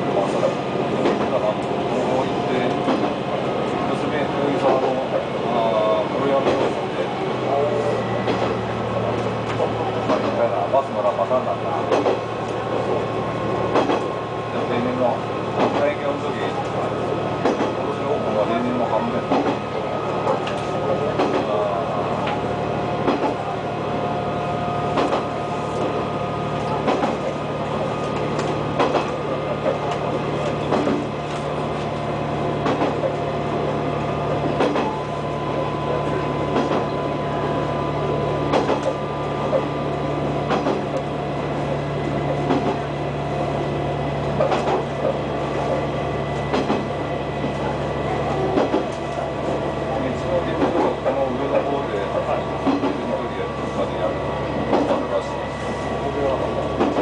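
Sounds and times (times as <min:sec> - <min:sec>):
railcar engine drone: 0:00.0 - 0:57.0
wheels clicking over rail joints: 0:44.4 - 0:45.2.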